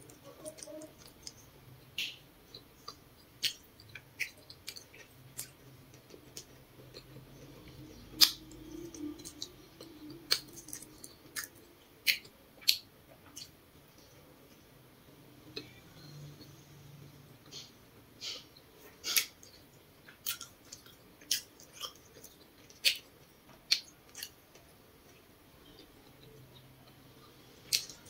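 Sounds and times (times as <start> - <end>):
mouth clicks while chewing: 2.0 - 13.6, 19.0 - 24.6, 27.6 - 28.0.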